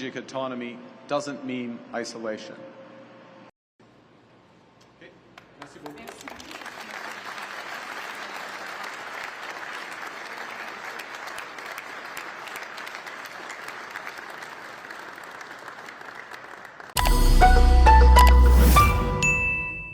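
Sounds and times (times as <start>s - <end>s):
audience applauding: 5.4s - 17.0s
musical sting with chimes: 17.0s - 19.9s.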